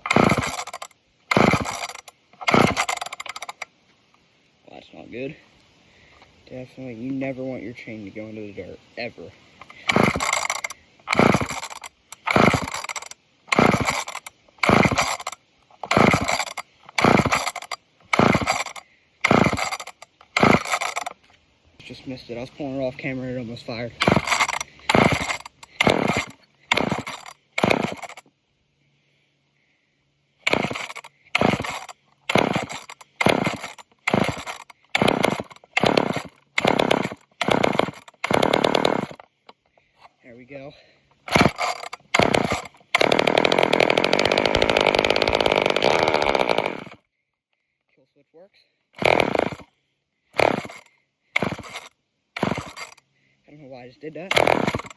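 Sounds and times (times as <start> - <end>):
engine cranking whirr: 0.0 - 3.7, 9.6 - 21.4, 23.7 - 28.3, 30.4 - 39.3, 41.1 - 47.0, 49.0 - 49.7, 50.3 - 53.0, 54.2 - 54.9
chainsaw recoil starter pulls: 0.0 - 3.8, 9.6 - 28.3, 30.4 - 39.8, 41.1 - 47.0, 49.0 - 49.7, 50.4 - 53.0, 54.1 - 54.9.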